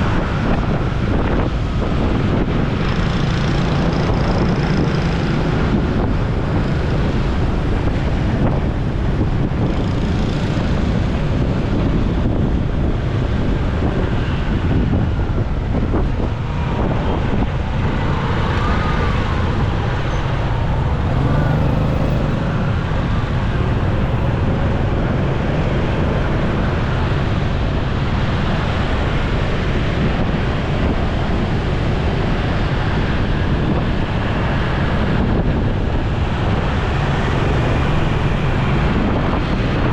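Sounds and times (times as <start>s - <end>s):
surrounding traffic: 0.0s - 39.9s
wind rushing over microphone: 0.0s - 39.9s
motorcycle engine: 19.3s - 27.3s.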